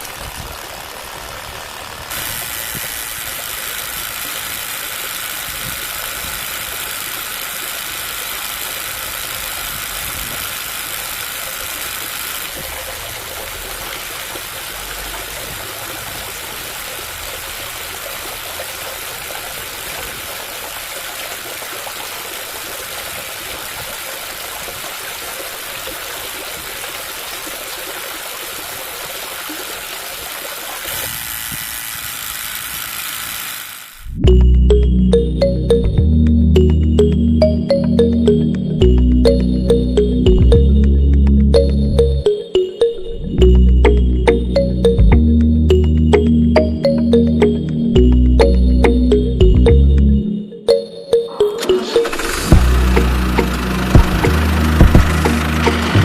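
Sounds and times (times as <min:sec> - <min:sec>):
small electric motor running: 0:00.0 - 0:34.2, 0:52.1 - 0:56.0
water rushing: 0:11.2 - 0:31.1.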